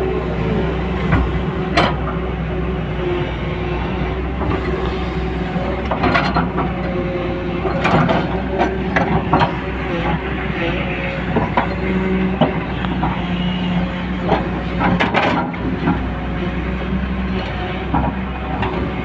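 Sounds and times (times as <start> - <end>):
heavy diesel machinery running: 0.0 - 19.0
metal clanks and knocks: 14.3 - 16.0.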